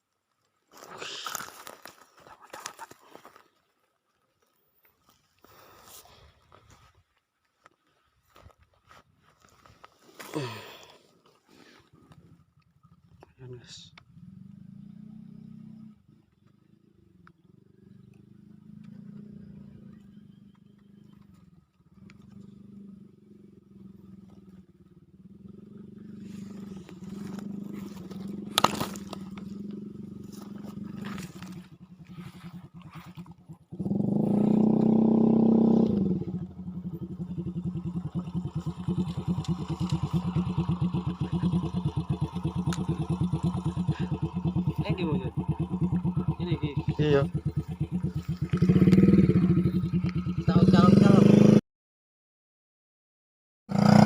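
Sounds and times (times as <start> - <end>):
small engine running: 14.0 - 51.6.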